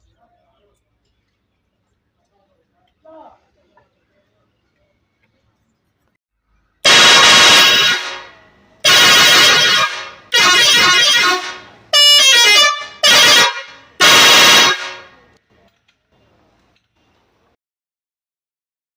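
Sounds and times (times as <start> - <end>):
vehicle horn blasts: 6.8 - 15.3.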